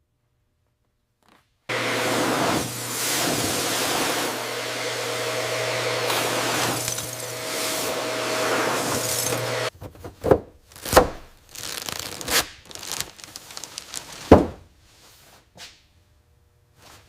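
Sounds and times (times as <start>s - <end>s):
tearing crinkling handling sounds: 10.7s - 14.5s.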